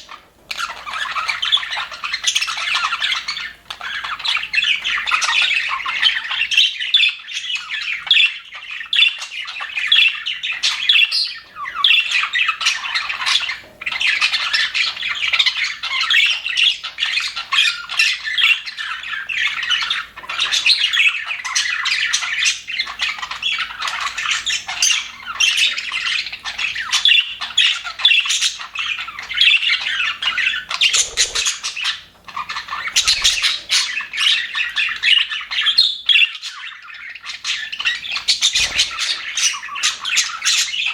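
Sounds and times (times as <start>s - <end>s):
budgerigars chattering and warbling: 0.0s - 40.9s.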